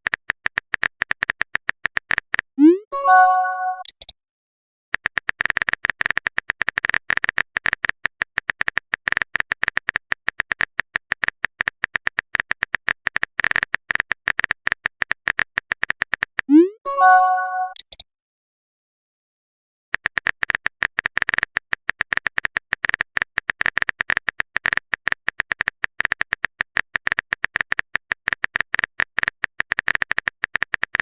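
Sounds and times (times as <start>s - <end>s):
rapid electronic clicking: 0.0s - 2.6s, 4.9s - 16.5s, 19.9s - 31.0s
steady high tone: 2.6s - 3.8s, 16.5s - 17.8s
short chime: 16.9s - 17.8s.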